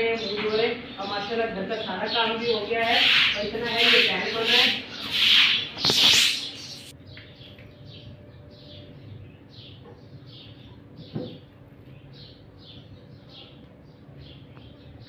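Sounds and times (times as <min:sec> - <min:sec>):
small bird chirping: 0:01.8 - 0:11.4.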